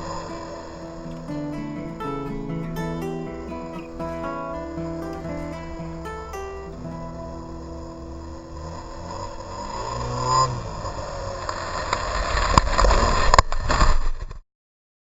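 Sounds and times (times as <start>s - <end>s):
snowmobile engine revving: 7.3s - 13.2s.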